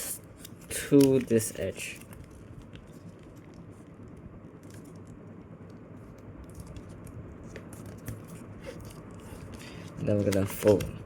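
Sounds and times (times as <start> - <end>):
low background hum: 0.0 - 11.0
paper being folded: 0.4 - 5.1, 6.0 - 11.0.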